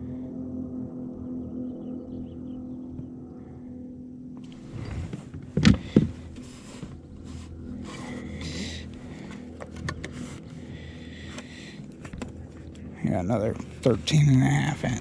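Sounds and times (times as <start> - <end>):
rustling and scraping: 4.4 - 10.6.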